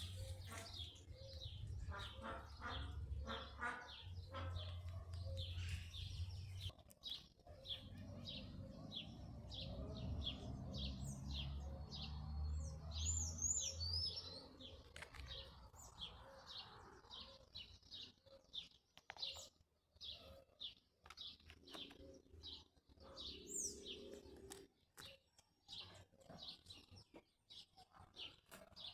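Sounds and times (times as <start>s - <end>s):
small bird chirping: 0.0s - 11.8s.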